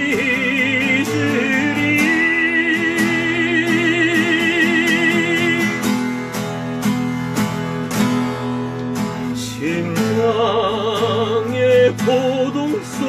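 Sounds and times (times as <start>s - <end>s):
person singing with vibrato: 0.0s - 6.1s, 9.4s - 13.0s
acoustic guitar strumming: 0.0s - 13.0s.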